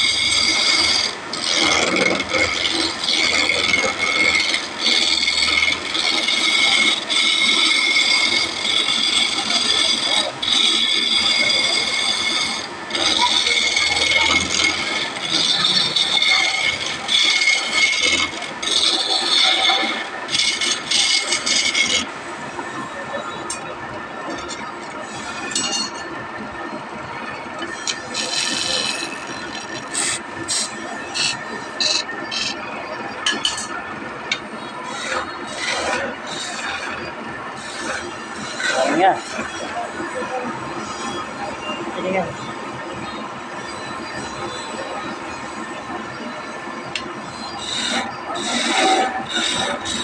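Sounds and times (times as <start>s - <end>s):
tool scraping along wood: 0.0s - 23.7s, 27.4s - 32.6s, 33.2s - 42.3s, 47.0s - 50.0s
hand rubbing across wood: 6.3s - 18.0s.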